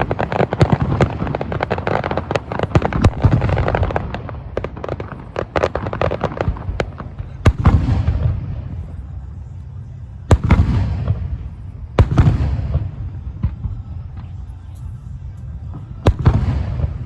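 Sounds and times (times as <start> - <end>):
heavy firework booms: 0.0 - 8.9, 10.3 - 13.8, 16.0 - 17.0
crackling firework reports: 0.0 - 17.0.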